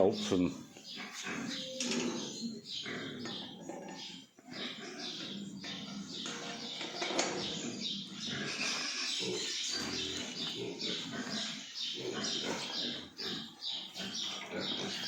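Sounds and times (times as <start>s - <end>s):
pigs grunting and squealing: 0.0s - 15.0s.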